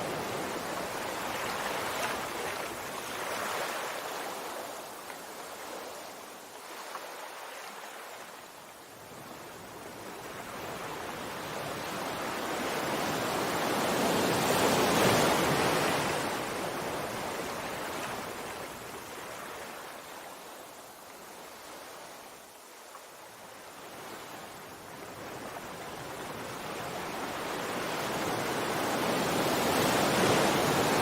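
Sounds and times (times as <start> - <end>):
sea waves breaking: 27.1 - 31.0.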